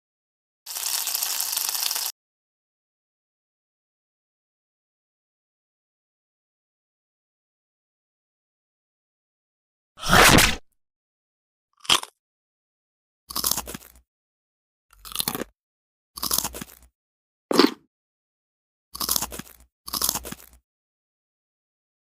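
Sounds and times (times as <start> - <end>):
short sound effects: 10.0 - 10.6.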